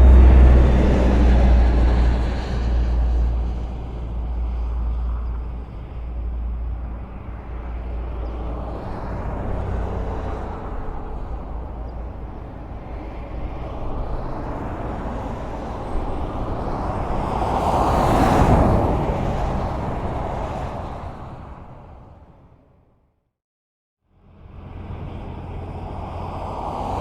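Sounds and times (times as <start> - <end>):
deep rumble: 0.0 - 17.5
vehicle passing close: 0.0 - 22.3
highway traffic noise: 0.0 - 23.1, 24.1 - 27.0.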